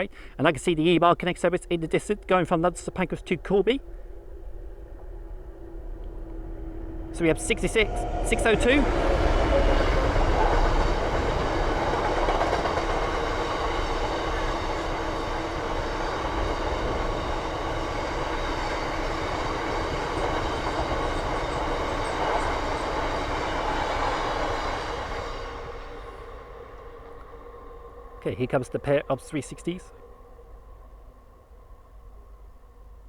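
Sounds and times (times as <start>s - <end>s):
freight train rumbling past: 0.0s - 33.0s.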